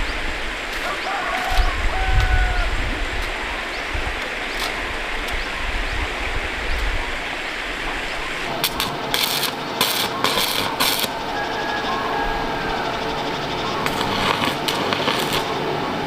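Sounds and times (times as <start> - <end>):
stream water rushing: 0.0 - 9.8
crackling hiss bursts: 0.0 - 16.0.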